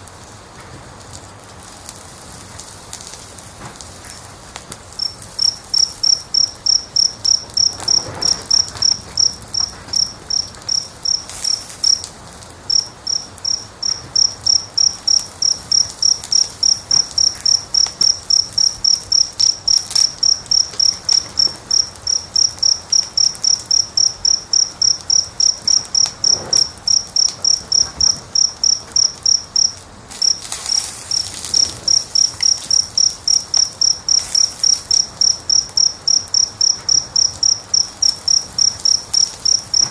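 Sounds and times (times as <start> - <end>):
fire hissing and crackling: 0.0 - 39.9
cricket chirping: 4.9 - 39.9.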